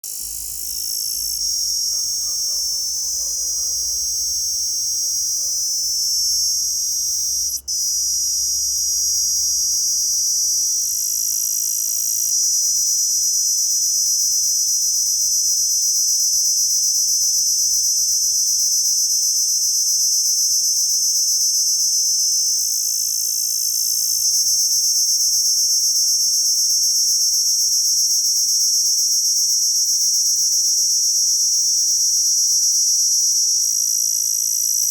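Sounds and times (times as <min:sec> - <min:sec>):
insect shrill call: 0:00.0 - 0:34.9.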